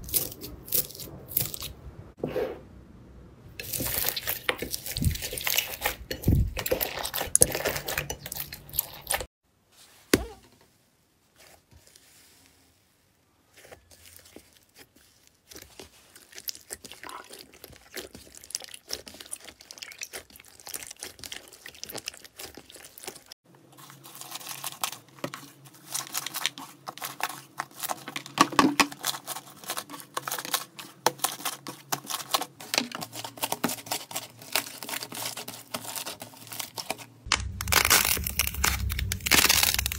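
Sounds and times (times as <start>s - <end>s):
slime crackling and popping: 31.3s - 39.9s.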